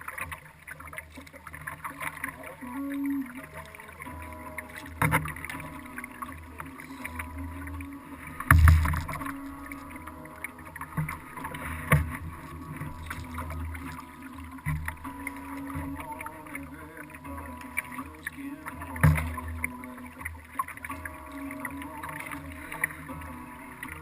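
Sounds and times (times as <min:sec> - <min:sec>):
water against kayak hull: 0:00.0 - 0:24.0
sharp knocks on hull: 0:08.5 - 0:09.3, 0:19.0 - 0:19.4.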